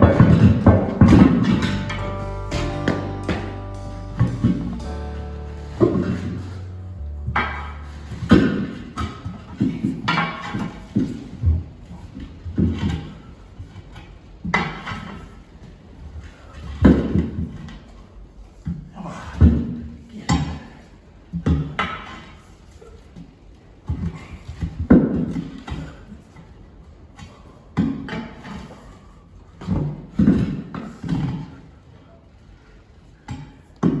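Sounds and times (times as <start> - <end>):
heavy thumps and knocks: 0.0 - 4.9.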